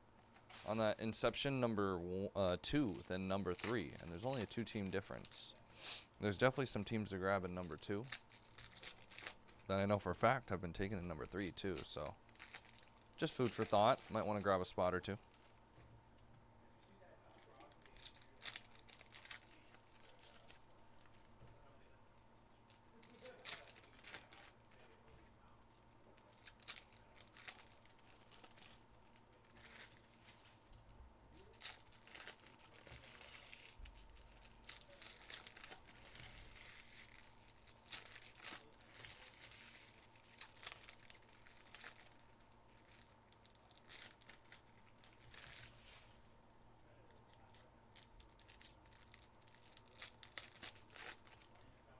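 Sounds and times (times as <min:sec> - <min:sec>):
wrappers crinkling and tearing: 0:02.6 - 0:05.6, 0:06.8 - 0:09.8, 0:10.8 - 0:15.6, 0:16.8 - 0:21.3, 0:22.7 - 0:46.3, 0:46.9 - 0:51.9.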